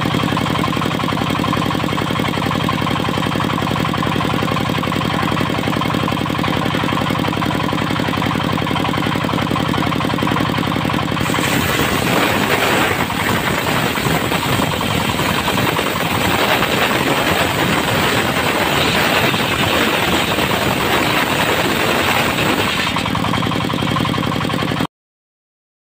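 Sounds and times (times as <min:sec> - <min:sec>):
diesel engine running: 0:00.0 - 0:24.9
saw blade cutting log: 0:11.2 - 0:23.5.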